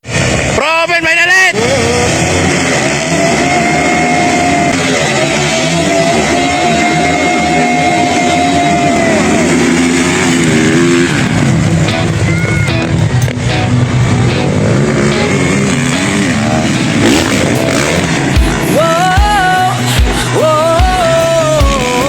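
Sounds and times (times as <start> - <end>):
dirt bike engine revving high: 0.0 - 22.0
other bike engines rising and falling: 0.0 - 22.0
music: 11.8 - 22.0.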